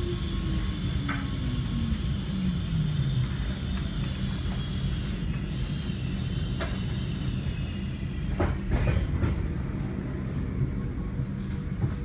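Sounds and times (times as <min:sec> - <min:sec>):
train equipment low hum: 0:00.0 - 0:12.0.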